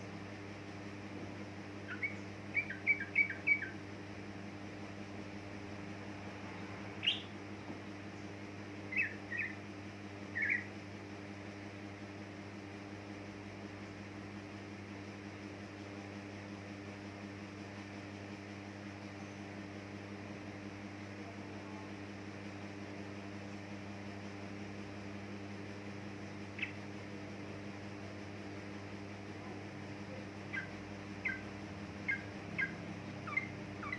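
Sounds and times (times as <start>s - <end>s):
low electrical hum: 0.0s - 33.9s
bird chirping: 1.9s - 3.8s, 7.0s - 7.4s, 8.9s - 9.6s, 10.3s - 10.7s, 26.6s - 26.8s, 30.5s - 33.9s.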